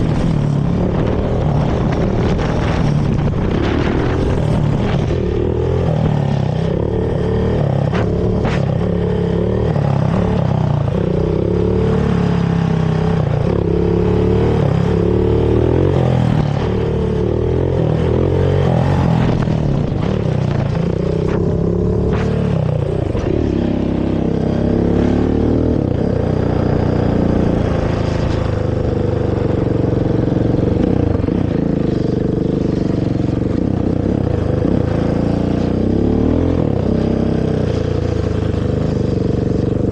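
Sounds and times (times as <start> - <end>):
quad engine revving: 0.0 - 31.8.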